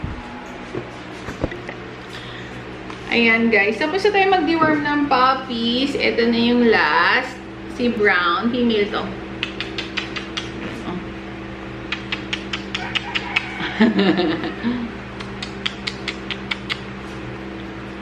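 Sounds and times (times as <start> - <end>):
puppy licking and smacking mouth: 9.4 - 10.6.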